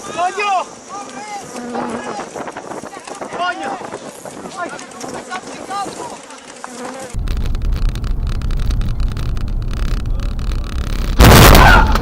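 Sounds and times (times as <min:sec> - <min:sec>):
low engine rumble: 0:07.2 - 0:11.2
window breaking crash: 0:07.3 - 0:12.0.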